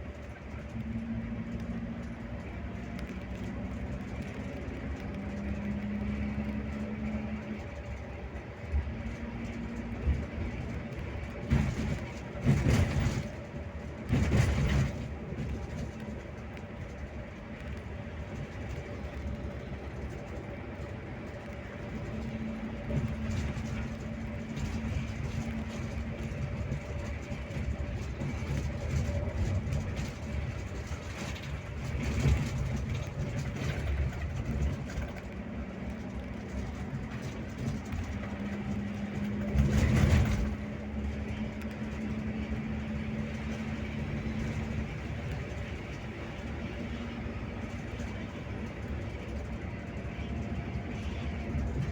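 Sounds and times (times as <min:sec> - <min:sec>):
bus engine and road rumble: 0:00.0 - 0:51.9.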